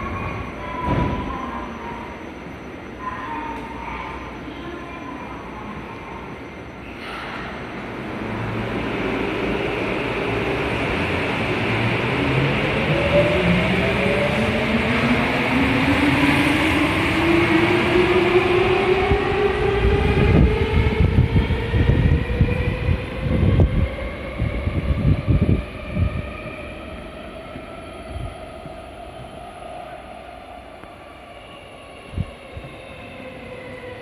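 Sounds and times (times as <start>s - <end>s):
train wheels rumbling and clattering: 0.0s - 1.6s.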